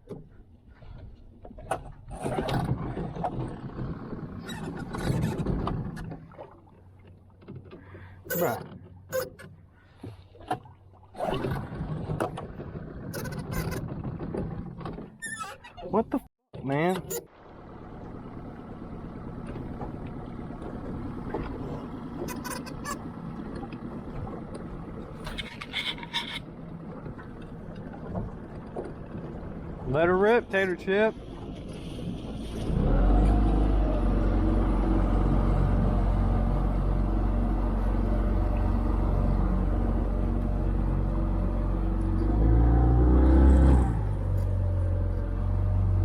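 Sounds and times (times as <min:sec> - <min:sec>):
outboard motor running: 0:17.3 - 0:46.0.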